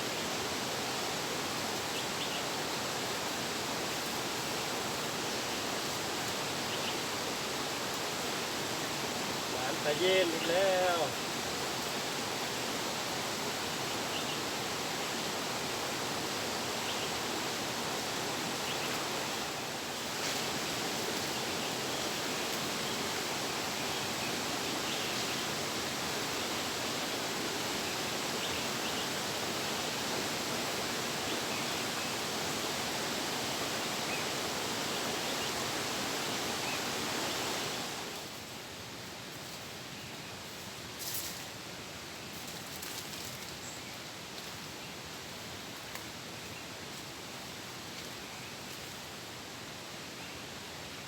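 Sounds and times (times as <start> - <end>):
flowing water rushing: 0.0 - 38.2.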